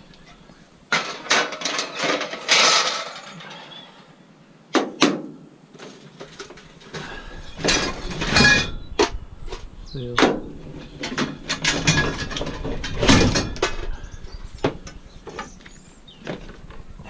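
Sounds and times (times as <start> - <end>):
scrap metal clattering: 0.9 - 3.8, 5.8 - 9.1, 10.6 - 15.6.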